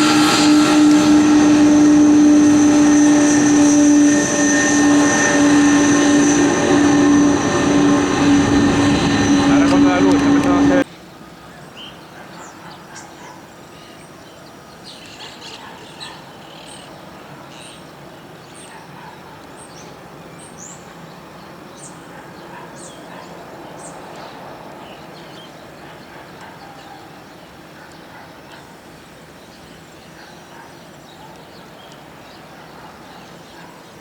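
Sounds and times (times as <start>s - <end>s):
distant outdoor hum: 0.0s - 10.9s
birds chirping: 0.0s - 34.0s.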